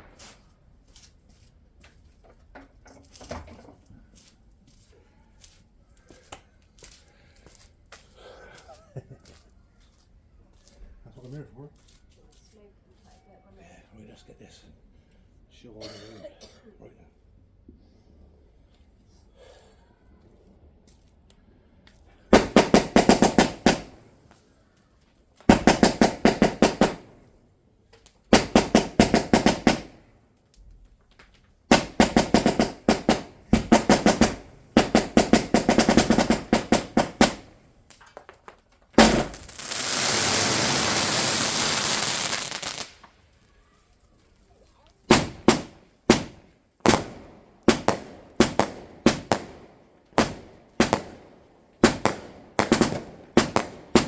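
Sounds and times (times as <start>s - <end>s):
firework cracks and bangs: 0.0s - 0.6s, 22.3s - 24.4s, 25.4s - 27.3s, 28.3s - 30.1s, 31.7s - 43.4s, 45.1s - 54.0s
firework hiss: 22.3s - 24.2s, 25.5s - 27.2s, 28.3s - 30.0s, 31.7s - 37.7s, 39.0s - 43.2s.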